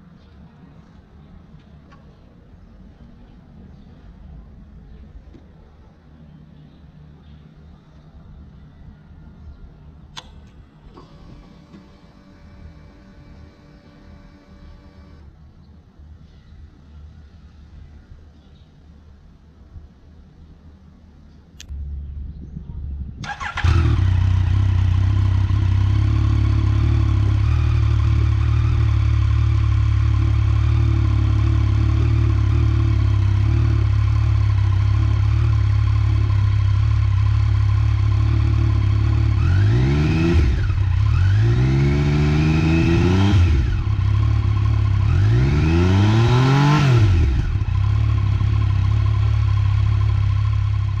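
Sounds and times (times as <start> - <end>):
motorcycle engine idling and revving: 9.4 - 16.2, 21.6 - 51.0.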